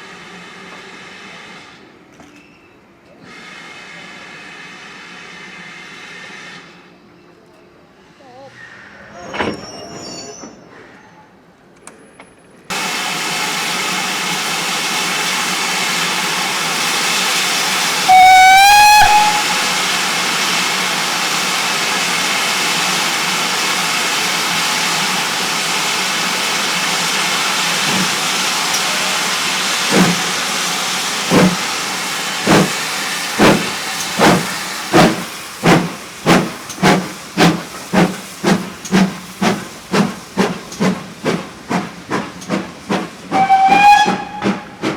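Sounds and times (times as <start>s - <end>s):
locomotive exhaust beats: 12.7s - 44.9s
steam hissing: 12.7s - 44.9s
steam locomotive whistle: 17.2s - 20.7s, 43.3s - 44.8s.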